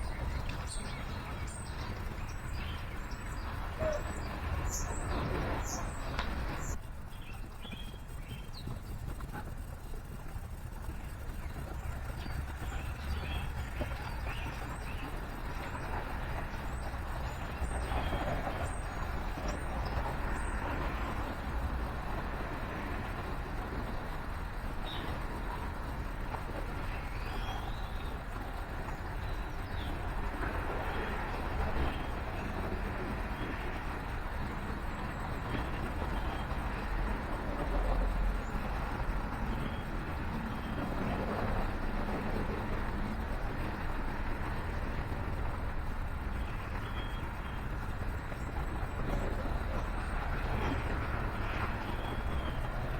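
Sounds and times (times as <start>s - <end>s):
faint songbird chirps: 0.0s - 9.3s, 46.4s - 50.8s
road traffic rumble: 0.0s - 52.9s.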